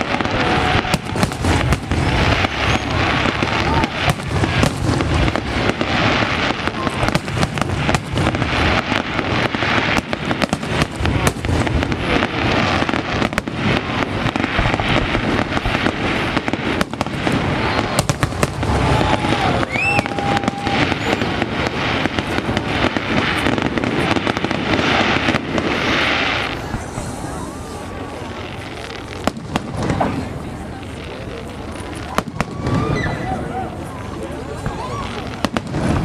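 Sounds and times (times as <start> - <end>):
rising firework whistle: 0.0 - 5.9, 17.6 - 22.4, 32.1 - 33.8
fireworks bangs and crackles: 0.0 - 36.0.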